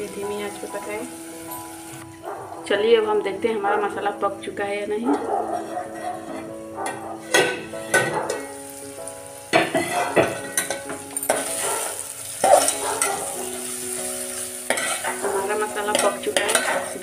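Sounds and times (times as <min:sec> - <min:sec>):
masala sizzling in oil: 0:00.0 - 0:17.0
spatula scraping pot: 0:05.2 - 0:08.5, 0:09.6 - 0:10.6, 0:14.7 - 0:17.0
metal lid clinking on pot: 0:05.2 - 0:08.6, 0:09.5 - 0:11.6, 0:14.7 - 0:17.0.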